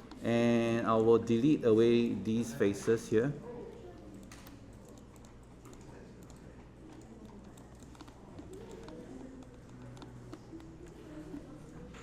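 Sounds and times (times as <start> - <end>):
keyboard typing clicks: 4.0 - 11.4.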